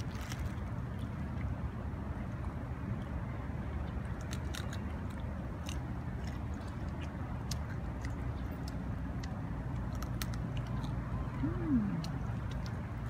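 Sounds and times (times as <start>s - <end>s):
chewing crunchy snack: 4.1s - 13.0s
steady low rumble: 4.8s - 13.0s.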